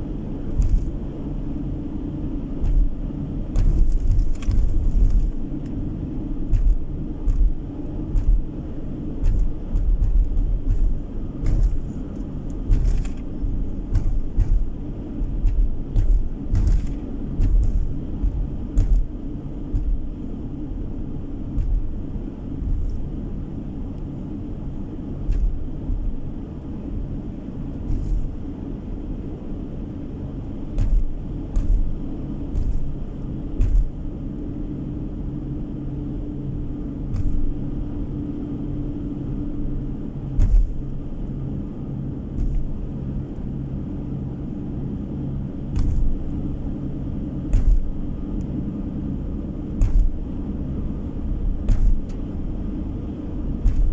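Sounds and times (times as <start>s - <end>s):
car engine and tyre noise: 0.0s - 53.9s
low thumps: 0.4s - 1.1s, 2.4s - 23.8s, 24.6s - 27.2s, 27.8s - 28.6s, 30.6s - 34.3s, 37.1s - 37.8s, 40.4s - 41.4s, 42.2s - 43.4s, 45.6s - 53.9s.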